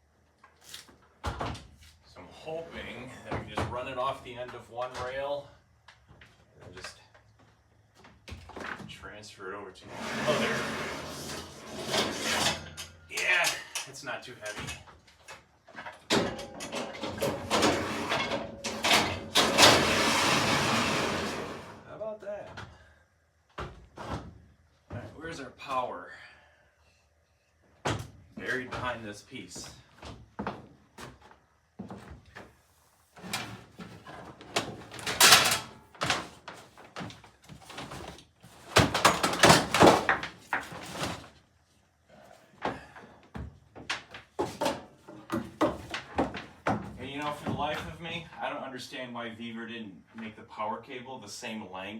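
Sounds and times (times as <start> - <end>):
slab scraping along rails: 9.8 - 12.8, 17.3 - 21.9
objects knocking and scraping: 9.9 - 21.9, 33.2 - 41.4, 42.6 - 48.0.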